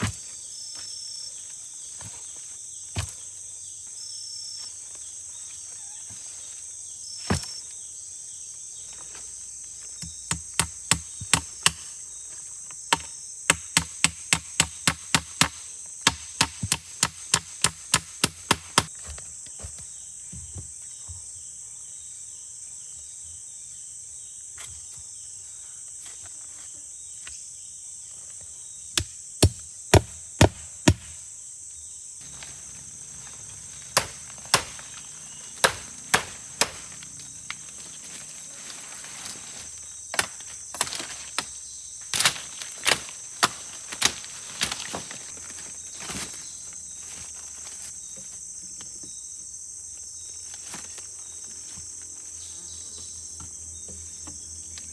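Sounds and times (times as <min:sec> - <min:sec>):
insects chirring: 0:00.0 - 0:54.9
tool striking wood: 0:12.9 - 0:18.9, 0:29.0 - 0:31.2, 0:32.3 - 0:37.6.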